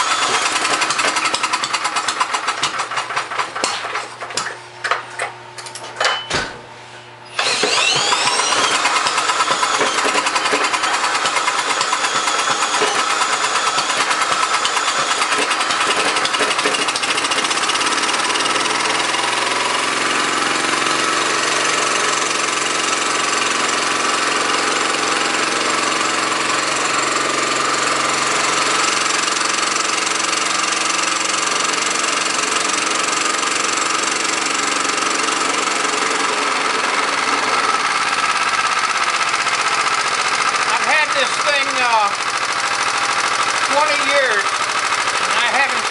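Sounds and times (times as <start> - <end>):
small engine running: 0.0 - 4.5, 7.2 - 45.9
engine clicks: 0.3 - 4.6.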